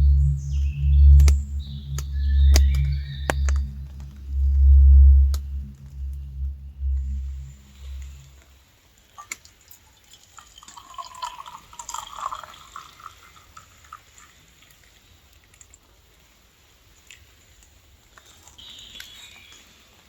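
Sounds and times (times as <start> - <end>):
water pouring into container: 10.6 - 13.2.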